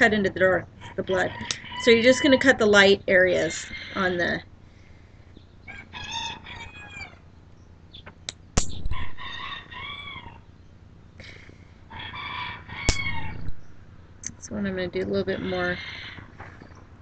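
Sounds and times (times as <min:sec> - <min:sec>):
hen calling: 0:00.0 - 0:07.3.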